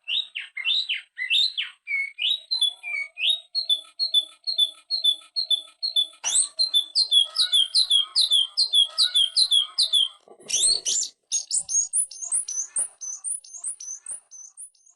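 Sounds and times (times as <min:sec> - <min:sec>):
songbird singing: 0:00.0 - 0:14.9.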